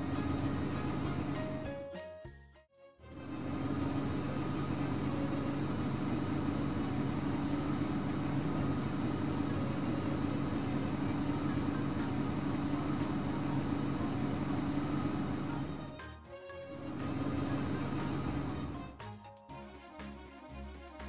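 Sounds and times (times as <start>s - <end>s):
vehicle engine idling: 0.0s - 1.6s, 3.2s - 16.0s, 16.7s - 19.0s.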